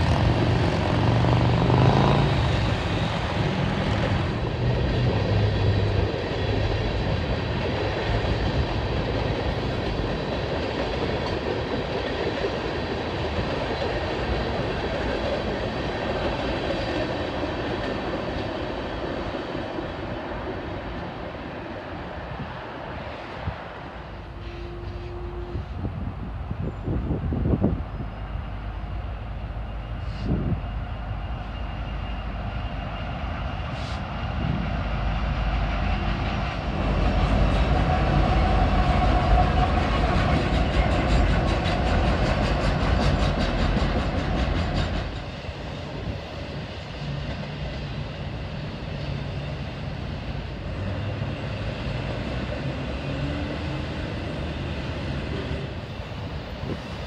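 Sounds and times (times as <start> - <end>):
diesel locomotives rumbling past: 0.0 - 57.0
freight cars rumbling and clattering: 35.3 - 57.0.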